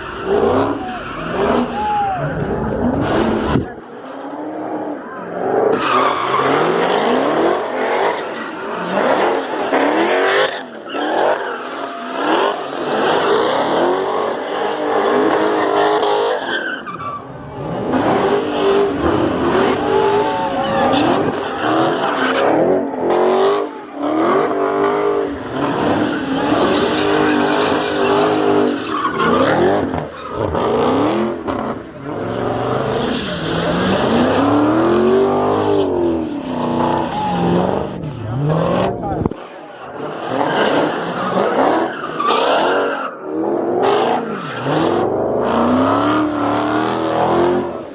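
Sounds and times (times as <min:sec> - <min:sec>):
car engines revving: 0:00.0 - 0:47.9
tires screeching: 0:00.0 - 0:47.9.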